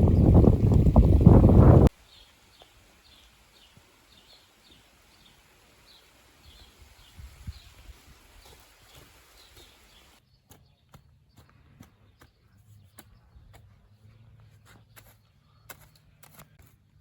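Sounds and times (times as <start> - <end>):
soft low thumps: 0.0 - 1.9.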